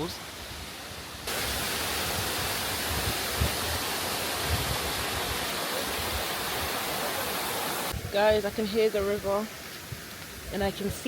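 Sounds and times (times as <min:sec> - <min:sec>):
river water rushing over rocks: 0:00.9 - 0:08.0.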